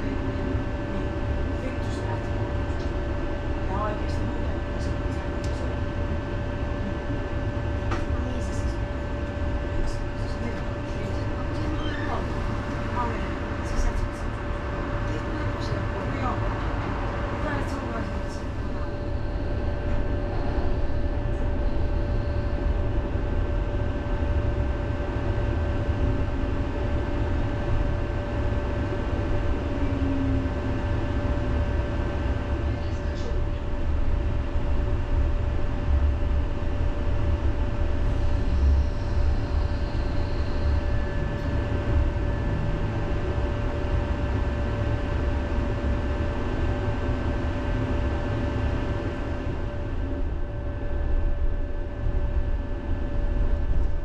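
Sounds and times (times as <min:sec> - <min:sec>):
constant hum: 0:00.0 - 0:54.0
tram wheels rumbling on rails: 0:09.8 - 0:21.7.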